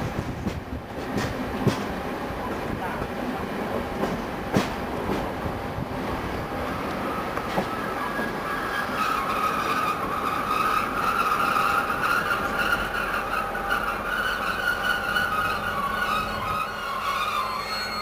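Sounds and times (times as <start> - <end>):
low rumble of train cars: 0.0 - 18.0
train wheels squealing on rails: 6.5 - 18.0.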